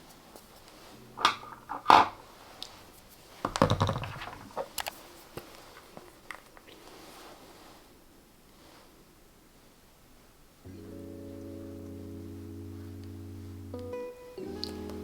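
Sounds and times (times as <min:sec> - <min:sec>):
rustle of handling: 0:00.0 - 0:10.4.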